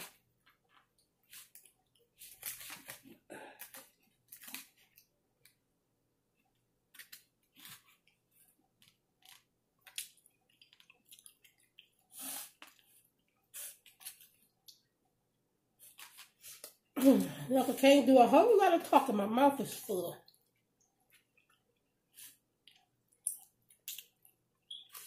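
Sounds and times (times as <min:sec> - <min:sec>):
close-up chewing: 0:07.5 - 0:14.9.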